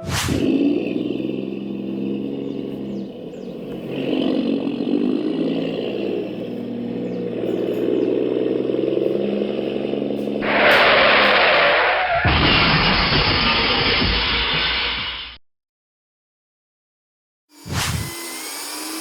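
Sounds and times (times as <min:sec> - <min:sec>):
loud hissing: 0:00.0 - 0:15.1
truck engine running: 0:00.4 - 0:12.2.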